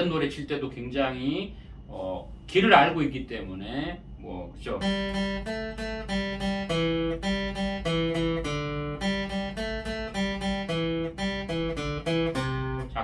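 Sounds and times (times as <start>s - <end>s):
acoustic guitar picking: 4.8s - 13.0s.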